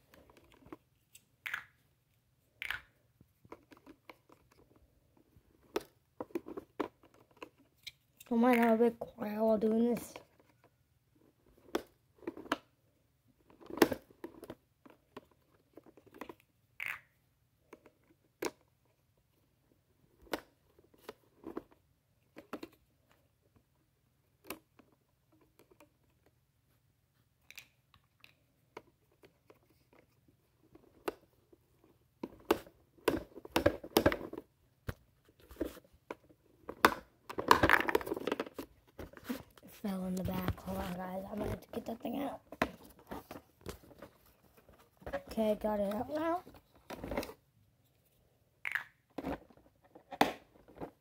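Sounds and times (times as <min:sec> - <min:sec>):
plastic toys clicking and clattering: 0:02.5 - 0:10.7, 0:13.4 - 0:19.0, 0:20.1 - 0:23.6, 0:27.4 - 0:34.5, 0:35.5 - 0:47.4, 0:48.6 - 0:51.0.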